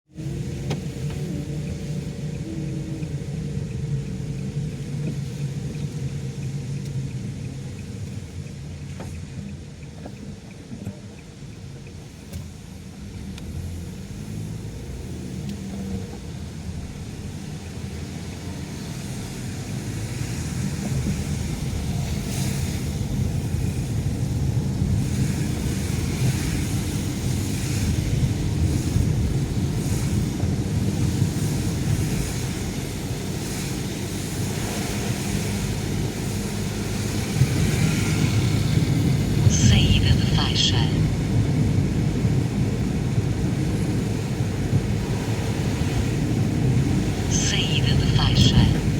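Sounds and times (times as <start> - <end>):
road rumble: 0.1 - 48.9
tyres hissing on wet road: 12.7 - 39.5, 41.3 - 47.3.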